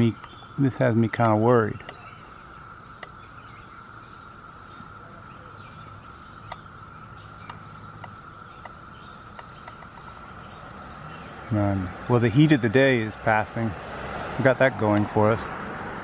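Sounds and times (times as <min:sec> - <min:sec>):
faint bird chirps: 0:00.0 - 0:13.1.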